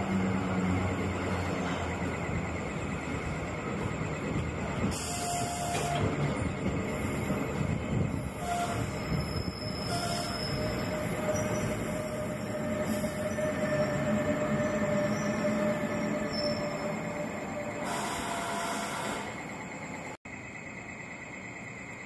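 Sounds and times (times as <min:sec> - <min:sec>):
train wheels rumbling: 0:00.0 - 0:20.2
thin steady squeal: 0:04.8 - 0:22.0.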